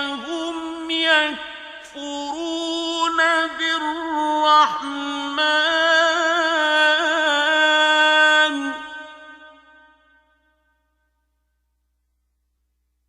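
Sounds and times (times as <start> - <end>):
man reciting melodic chant: 0.0 - 9.3.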